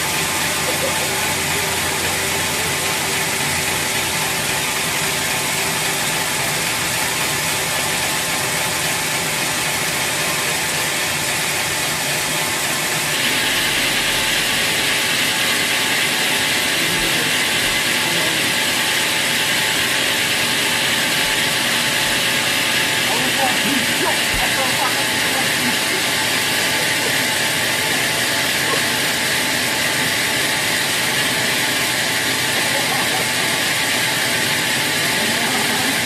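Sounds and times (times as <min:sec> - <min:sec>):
sawmill machinery running: 0:00.0 - 0:36.0.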